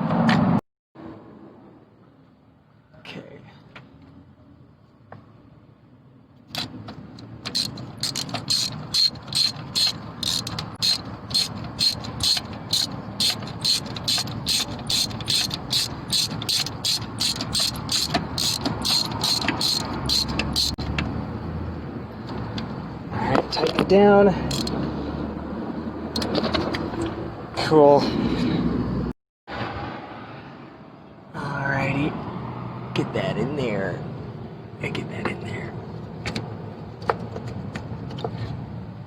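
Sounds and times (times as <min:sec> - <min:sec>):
ratchet wrench clicking: 0:06.5 - 0:20.9, 0:24.5 - 0:24.8.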